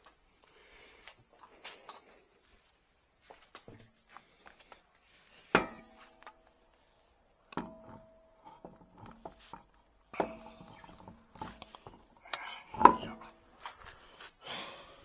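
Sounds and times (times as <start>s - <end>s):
metallic clanks: 5.6s - 6.4s, 7.5s - 13.3s.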